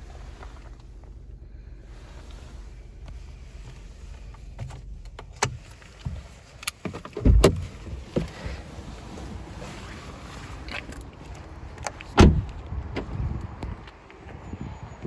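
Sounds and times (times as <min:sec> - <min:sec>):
low steady hum: 0:00.0 - 0:06.6
clicks and knocks in car cabin: 0:03.0 - 0:09.4, 0:10.7 - 0:13.9
heavy thump: 0:12.2 - 0:13.3.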